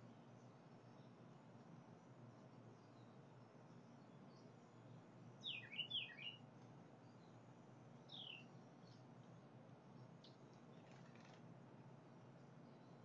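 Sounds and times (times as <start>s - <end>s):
songbird whistling: 5.4s - 6.4s, 8.1s - 8.5s.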